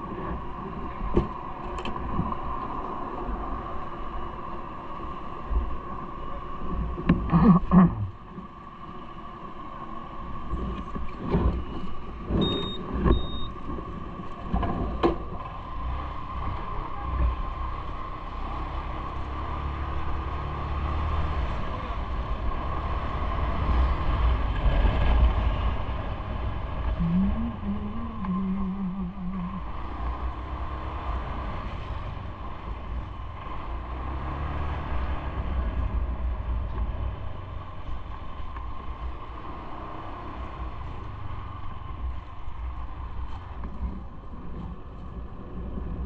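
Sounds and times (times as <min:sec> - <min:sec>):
vehicle ride rumble: 0:00.0 - 0:46.0
short high beeps: 0:12.4 - 0:13.5.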